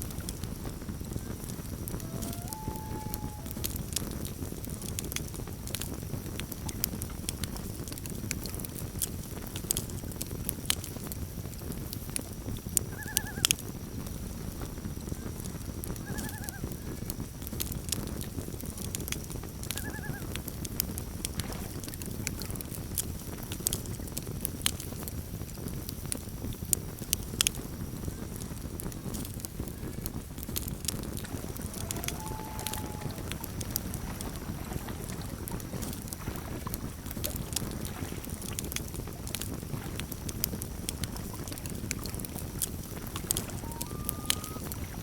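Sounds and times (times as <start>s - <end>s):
campfire crackling: 0.0s - 45.0s
loon calling: 1.9s - 3.7s, 12.9s - 13.5s, 31.0s - 35.2s, 43.2s - 45.0s.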